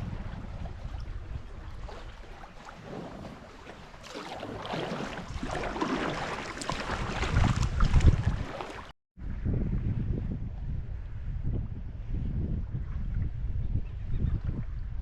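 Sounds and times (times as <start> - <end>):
water splashing around kayak: 0.0 - 8.9
wind rumbling on microphone: 0.0 - 15.0.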